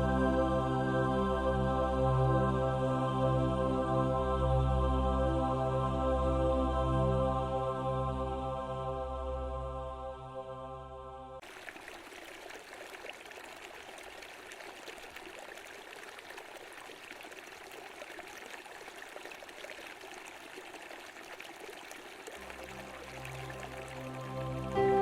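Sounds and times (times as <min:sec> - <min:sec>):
background music: 0:00.0 - 0:11.4, 0:22.4 - 0:25.0
running water in a stream: 0:11.4 - 0:25.0.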